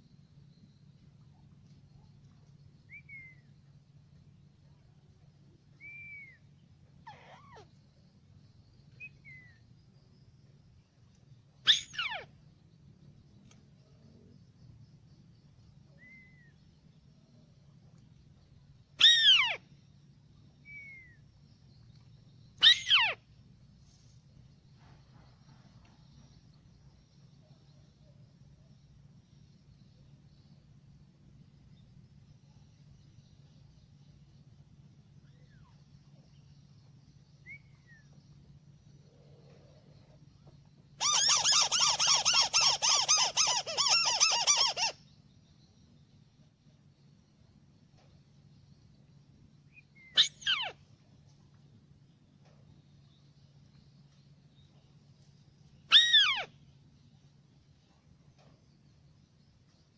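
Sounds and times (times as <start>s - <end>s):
crake calling: 22.6s - 23.2s, 41.0s - 45.1s, 49.7s - 50.9s, 55.9s - 56.7s.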